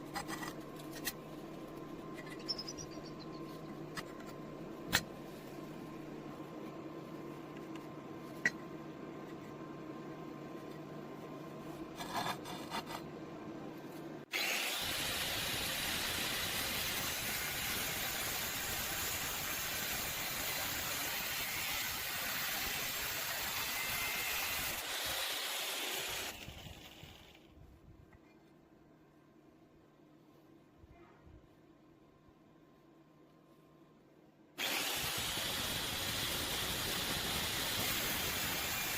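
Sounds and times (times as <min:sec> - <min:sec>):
power tool cutting metal: 0:14.3 - 0:27.2, 0:34.6 - 0:38.9.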